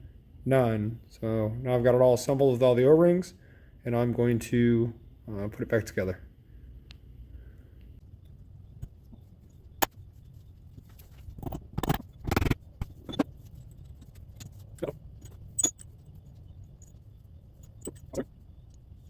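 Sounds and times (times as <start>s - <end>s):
metal parts clinking and knocking: 11.2s - 17.0s, 17.6s - 18.2s.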